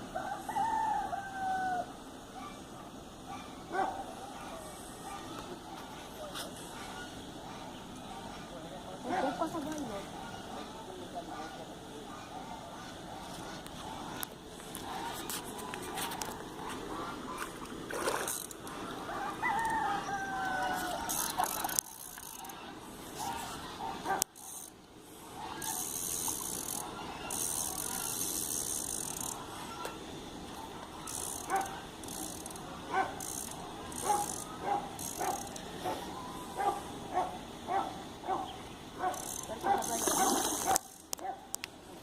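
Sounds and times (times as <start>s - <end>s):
rooster crowing: 0.2s - 1.9s, 19.1s - 21.7s
fishing reel ratchet clicking: 18.2s - 18.7s, 21.1s - 22.6s, 24.3s - 24.8s, 25.6s - 29.4s, 31.0s - 35.7s, 39.1s - 41.2s.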